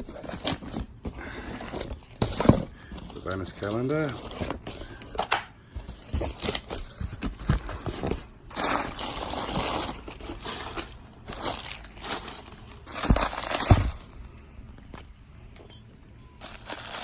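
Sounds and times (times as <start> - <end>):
wrapping crinkling and rustling: 0.0 - 15.5, 16.2 - 17.0.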